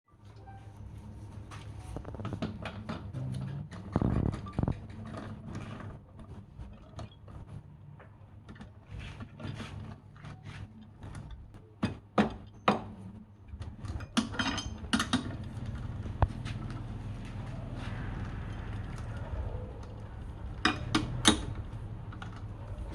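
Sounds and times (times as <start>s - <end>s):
low machine hum: 15.4s - 22.9s.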